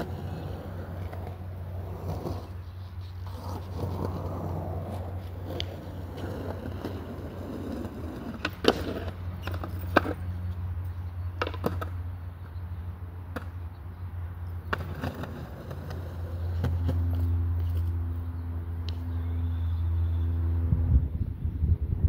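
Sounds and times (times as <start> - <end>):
skateboard clacking on ground: 0.0 - 12.6, 13.3 - 13.6, 14.5 - 18.0
skateboard wheels rolling: 0.0 - 18.0.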